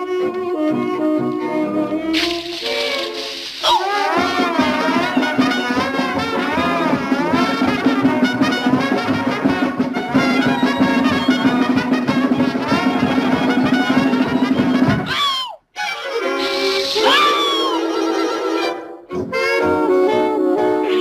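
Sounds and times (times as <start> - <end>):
orchestral cartoon music with brass: 0.0 - 15.2, 15.8 - 21.0.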